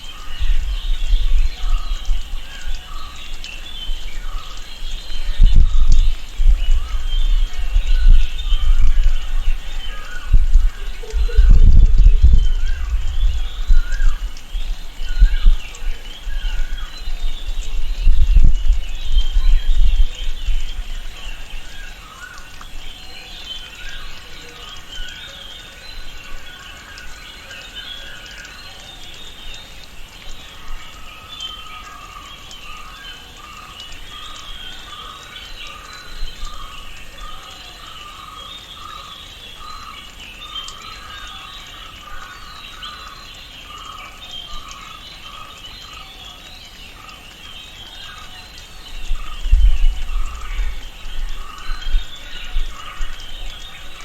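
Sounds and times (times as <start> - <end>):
birds chirping and calling: 0.0 - 54.0
deep rumble: 5.3 - 15.6.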